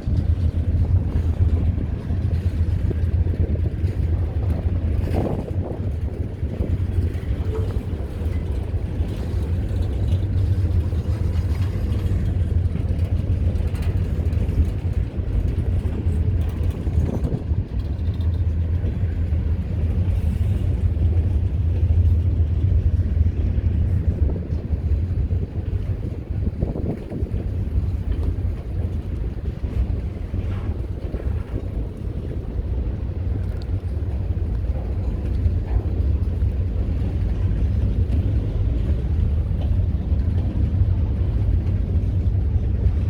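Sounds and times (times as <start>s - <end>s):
freight train rumbling: 0.0s - 43.0s.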